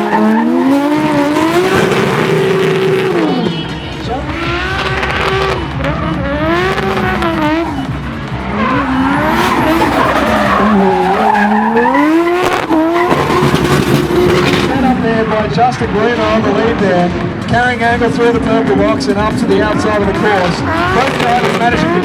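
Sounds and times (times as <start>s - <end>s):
car engines revving: 0.0s - 22.0s
tyre squeal: 6.6s - 15.0s.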